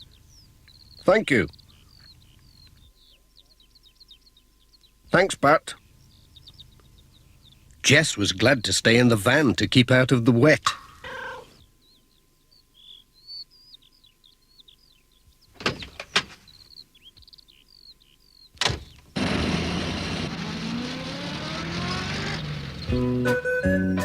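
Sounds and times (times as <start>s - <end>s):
birds chirping: 0.0s - 24.0s
van engine accelerating: 19.2s - 24.0s.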